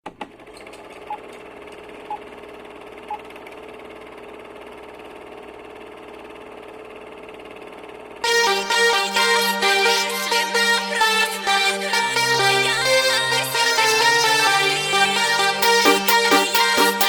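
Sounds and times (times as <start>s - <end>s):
electronic dance music: 8.2s - 17.0s.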